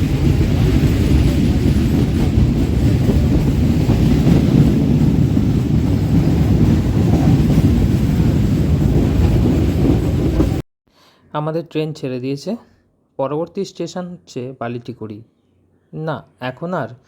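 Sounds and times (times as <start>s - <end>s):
train rumbling on track: 0.0s - 10.6s.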